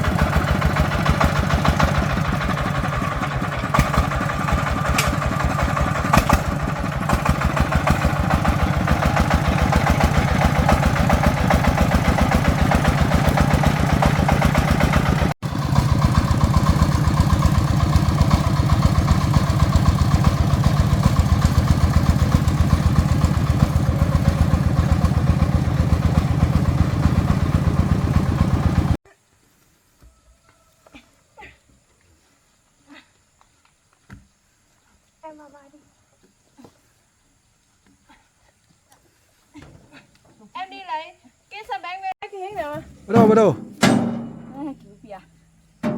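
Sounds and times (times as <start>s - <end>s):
diesel engine chugging: 0.0s - 29.0s, 42.9s - 45.9s.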